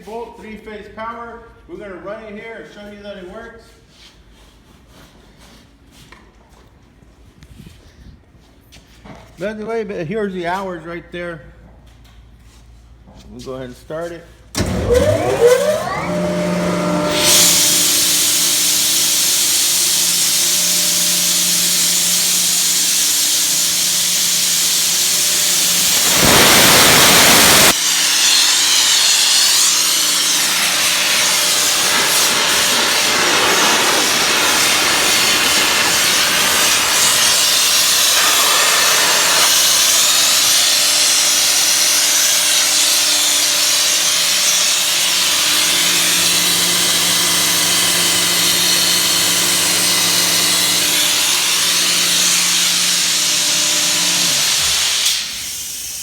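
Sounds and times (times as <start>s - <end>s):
air compressor running: 14.5s - 56.0s
loud air hiss: 16.9s - 56.0s.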